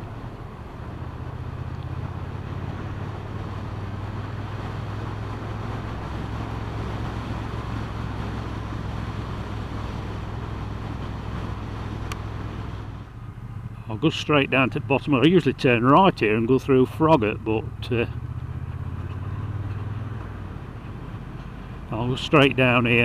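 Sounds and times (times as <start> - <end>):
wind rushing over microphone: 0.0 - 13.2
motorcycle engine running: 0.0 - 23.0.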